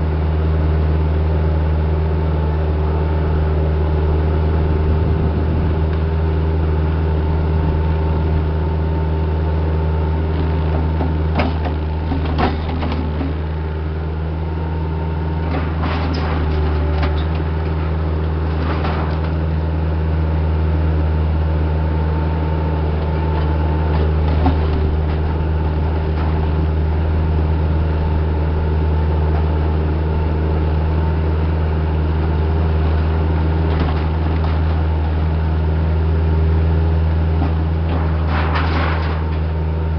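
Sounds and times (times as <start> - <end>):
diesel engine running: 0.0 - 39.9
knocks and clanks: 10.7 - 13.4, 37.4 - 39.5.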